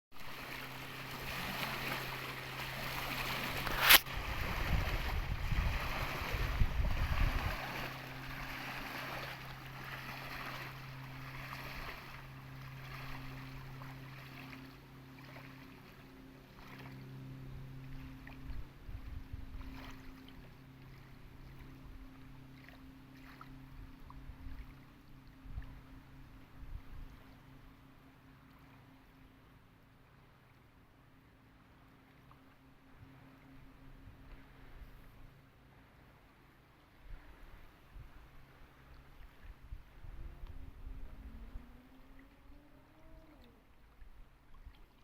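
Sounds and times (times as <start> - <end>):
water noise: 0.1 - 45.0
wind noise: 3.1 - 8.5, 39.3 - 41.8
low rumbling: 37.1 - 44.2.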